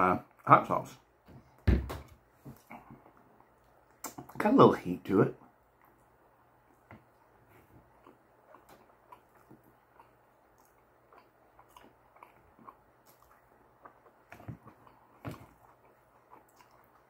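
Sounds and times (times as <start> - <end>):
knock: 1.7 - 2.1
chewing with wet mouth clicks: 2.6 - 4.4, 7.8 - 17.0.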